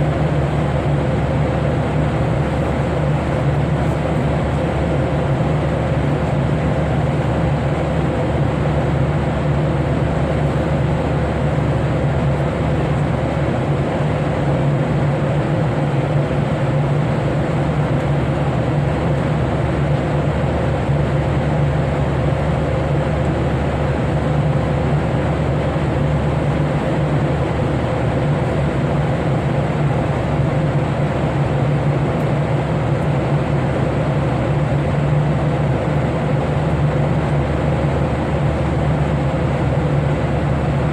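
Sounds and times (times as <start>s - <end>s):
airliner cabin engine drone: 0.0s - 40.9s.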